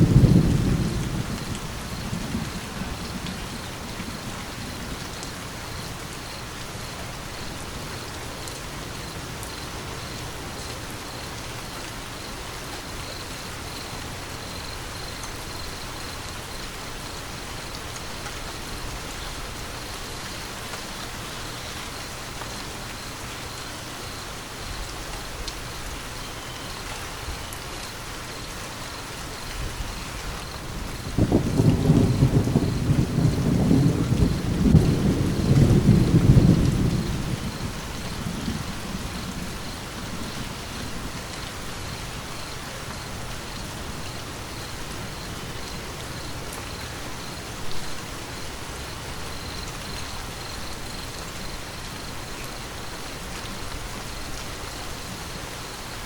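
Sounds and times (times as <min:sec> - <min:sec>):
thunder rolling: 0:00.0 - 0:05.1, 0:29.6 - 0:41.2
steady rain falling: 0:00.0 - 0:56.0.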